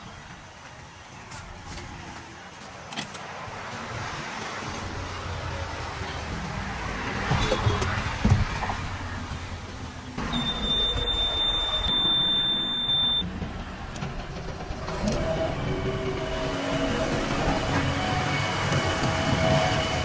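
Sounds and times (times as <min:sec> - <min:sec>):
diesel engine running: 0:04.6 - 0:20.0
high steady tone: 0:10.2 - 0:13.2.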